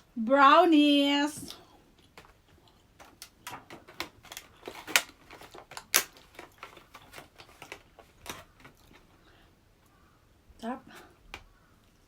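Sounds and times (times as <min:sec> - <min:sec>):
close chewing and mouth clicks: 0:01.5 - 0:03.4.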